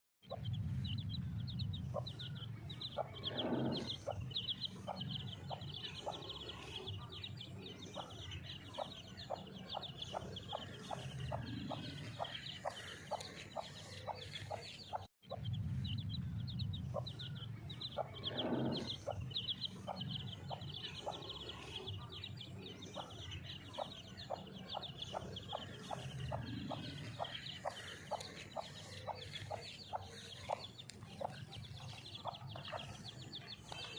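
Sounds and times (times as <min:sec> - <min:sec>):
chicks peeping: 0:00.3 - 0:33.9
hen clucking: 0:08.0 - 0:15.4, 0:23.0 - 0:33.9.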